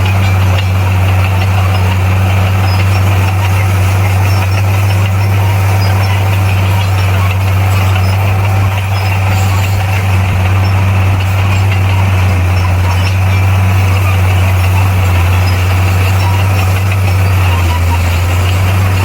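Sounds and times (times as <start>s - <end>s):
bulldozer diesel engine droning: 0.0s - 19.0s
machine rattle: 0.0s - 19.0s.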